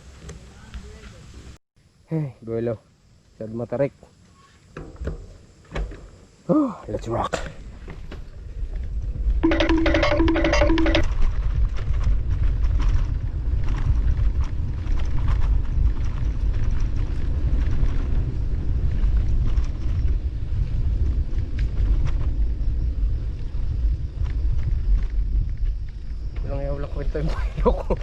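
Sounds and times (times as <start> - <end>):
wind buffeting microphone: 11.1 - 28.0.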